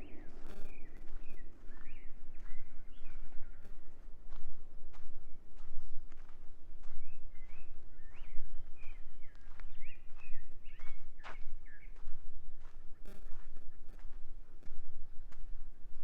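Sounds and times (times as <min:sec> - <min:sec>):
steady low rumble: 0:00.0 - 0:09.8
footsteps on a path: 0:00.0 - 0:16.0.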